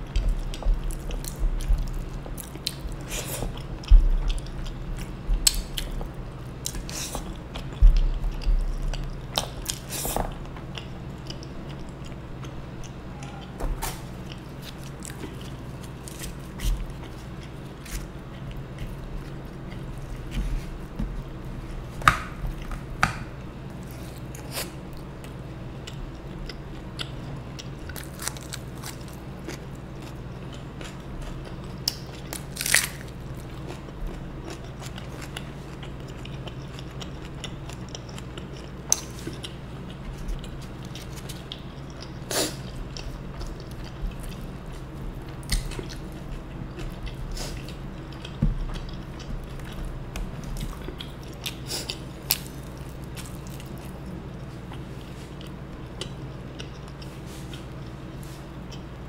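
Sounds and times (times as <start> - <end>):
low hum: 0.0 - 32.4
chewing and biting food: 0.0 - 59.0.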